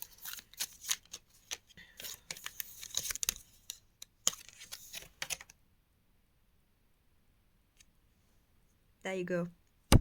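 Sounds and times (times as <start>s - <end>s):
cards being shuffled: 0.0s - 5.6s.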